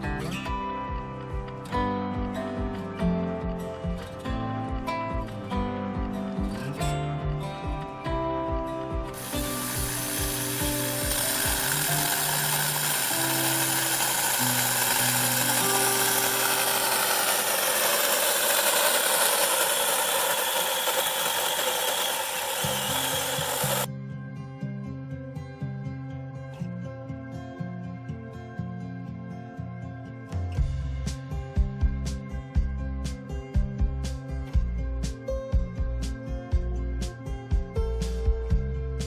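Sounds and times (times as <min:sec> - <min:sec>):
electric chainsaw cutting branches: 0:09.1 - 0:23.9.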